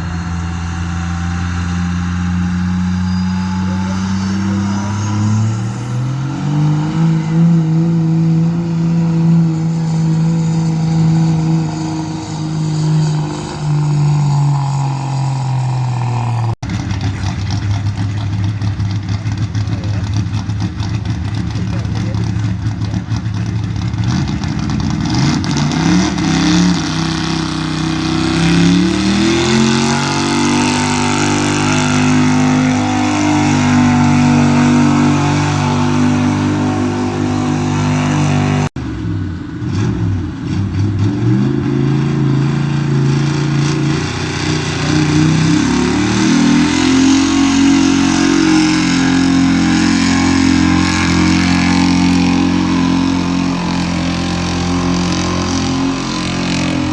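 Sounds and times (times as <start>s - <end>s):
vehicle engine revving under load: 0.0s - 56.9s.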